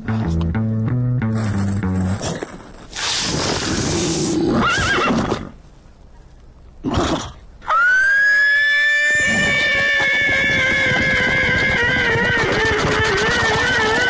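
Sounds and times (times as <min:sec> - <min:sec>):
cartoon rushing noise: 0:02.9 - 0:05.4, 0:07.7 - 0:14.0
wavering whinny-like cry: 0:07.6 - 0:14.0.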